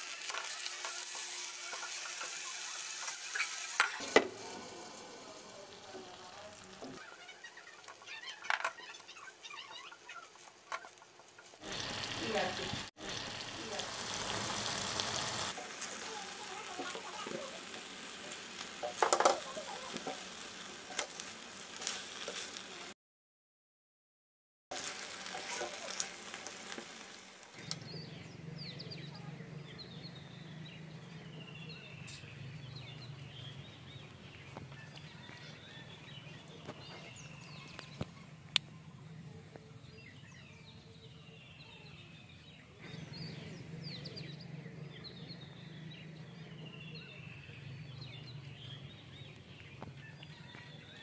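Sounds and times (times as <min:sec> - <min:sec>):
food sizzling in hot oil: 0:00.0 - 0:23.0, 0:24.7 - 0:28.2.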